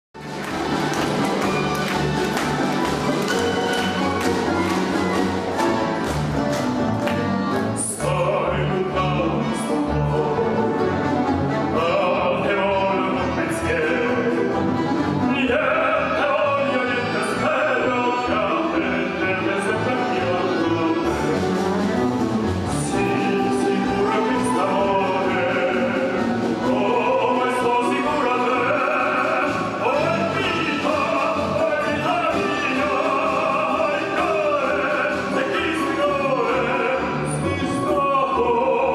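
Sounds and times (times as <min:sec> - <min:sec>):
orchestra playing: 0:00.2 - 0:38.9.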